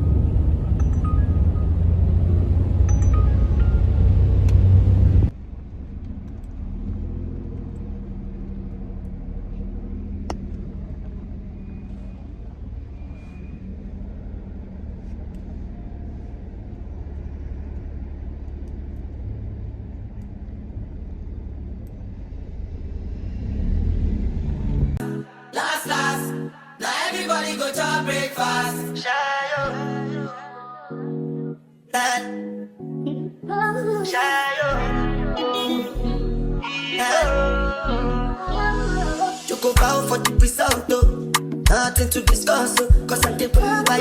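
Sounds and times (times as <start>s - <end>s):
car rumble on road: 0.0s - 25.0s
louder low rumble: 0.0s - 25.0s.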